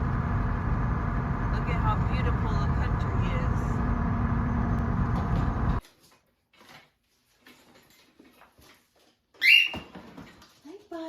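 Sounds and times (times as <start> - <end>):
road noise inside moving car: 0.0 - 5.8.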